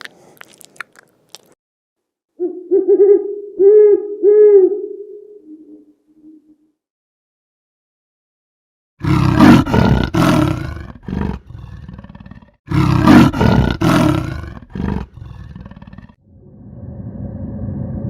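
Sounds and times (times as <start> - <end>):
big cat grunting: 9.0 - 16.2
big cat roaring: 9.0 - 16.2.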